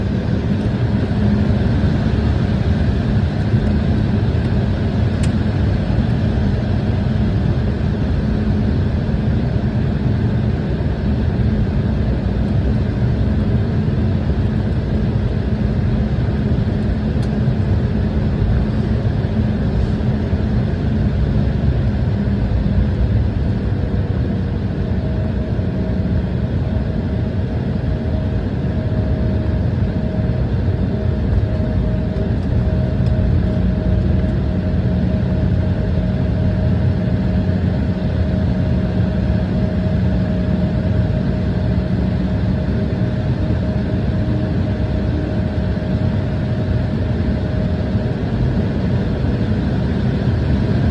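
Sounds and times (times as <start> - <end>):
airliner engines rumbling: 0.0 - 50.9.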